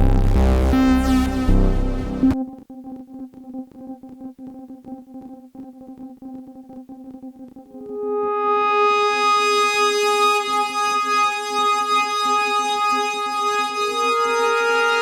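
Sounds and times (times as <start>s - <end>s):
loud bass synthesizer tone: 0.0s - 2.4s.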